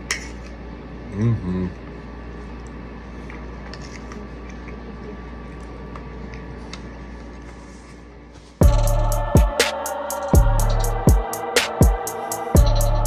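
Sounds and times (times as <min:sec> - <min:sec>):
low room hum: 0:00.0 - 0:13.0
loud music with drum hit: 0:08.6 - 0:13.0.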